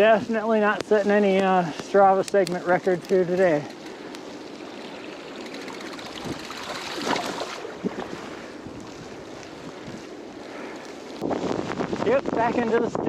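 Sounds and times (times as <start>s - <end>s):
wind rushing over microphone: 5.8s - 13.0s.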